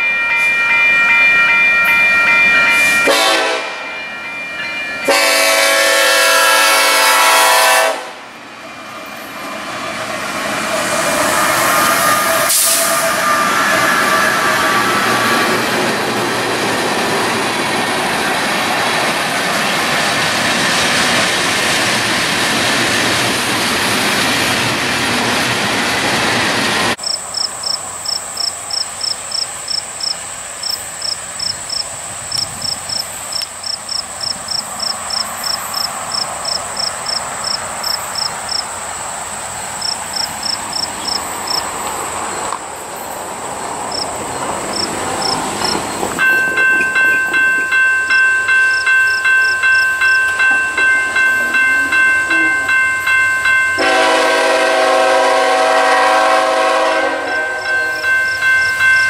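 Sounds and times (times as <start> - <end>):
train rolling past: 0.0 - 59.0
insect chirping in high pulses: 27.0 - 43.3, 43.9 - 46.0.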